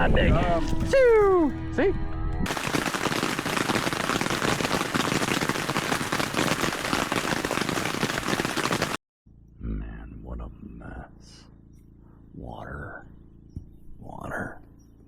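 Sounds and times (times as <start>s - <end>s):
heavy rain falling: 2.5s - 9.0s.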